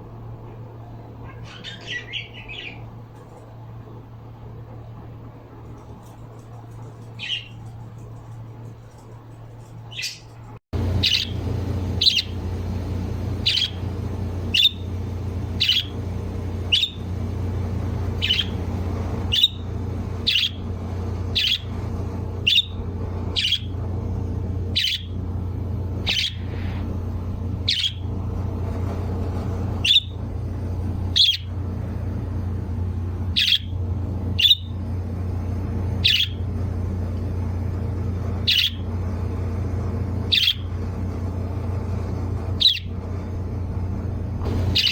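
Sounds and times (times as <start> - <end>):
steady low hum: 0.0 - 44.9
bird chirping: 1.2 - 2.9, 7.0 - 7.8, 9.9 - 12.6, 13.3 - 16.0, 16.6 - 17.1, 18.0 - 19.6, 20.2 - 20.6, 21.4 - 21.7, 22.5 - 22.8, 23.4 - 23.7, 24.8 - 25.2, 26.0 - 26.6, 27.6 - 28.1, 29.8 - 30.2, 31.1 - 31.5, 33.4 - 33.7, 34.4 - 34.8, 36.0 - 36.4, 38.5 - 38.8, 40.3 - 40.6, 44.5 - 44.9.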